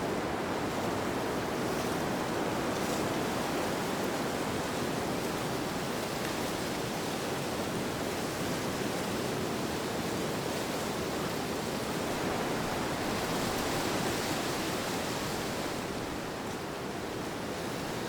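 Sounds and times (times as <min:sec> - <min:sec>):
rushing wind: 0:11.8 - 0:17.8.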